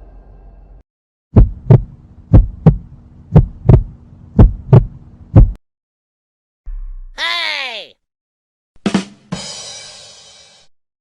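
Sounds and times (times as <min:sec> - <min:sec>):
heartbeat thumps: 0:01.3 - 0:05.6.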